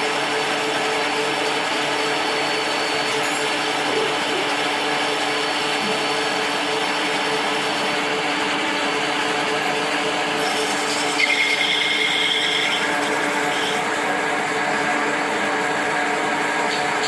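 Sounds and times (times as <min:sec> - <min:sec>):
machine tool humming: 0:00.0 - 0:17.0
high-pitched squeal: 0:10.4 - 0:13.9.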